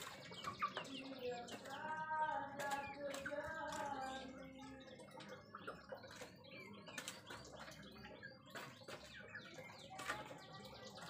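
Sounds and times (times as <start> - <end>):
faint bird chirping: 0.0 - 11.0.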